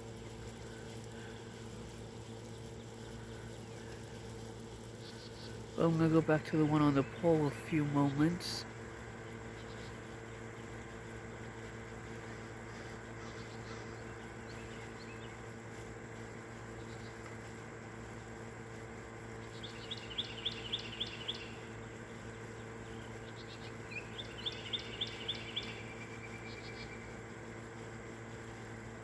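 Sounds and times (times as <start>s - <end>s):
songbirds singing: 0.0s - 29.0s
steady low hum: 0.0s - 29.0s
faint bird chirps: 19.4s - 27.2s
bird trill: 19.5s - 21.7s, 22.8s - 27.1s.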